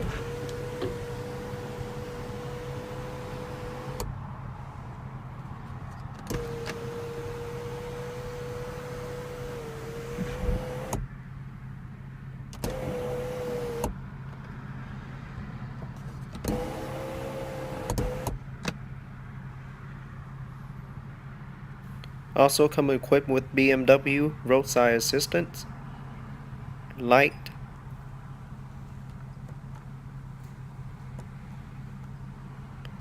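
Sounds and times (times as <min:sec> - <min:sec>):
sunroof motor whine: 0:00.0 - 0:11.3, 0:12.0 - 0:14.3, 0:16.4 - 0:18.4.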